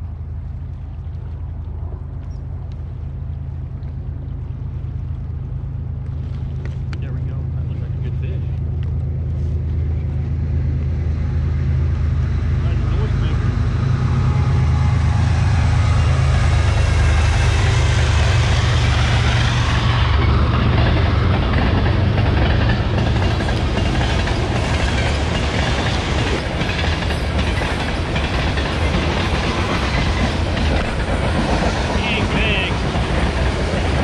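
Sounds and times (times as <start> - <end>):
deep low drone: 0.0 - 34.0
train passing: 7.1 - 34.0.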